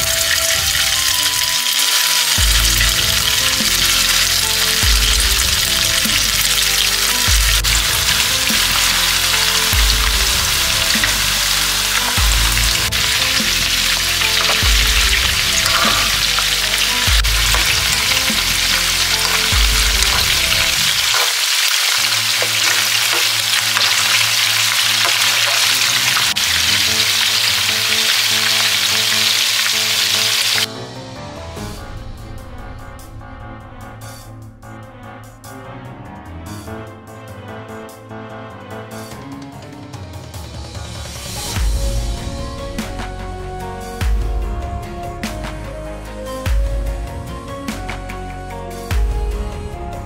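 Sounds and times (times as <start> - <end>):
meatballs sizzling in oil: 0.0 - 30.7
low background music: 0.0 - 50.0
fork turning food in pan: 10.9 - 29.7.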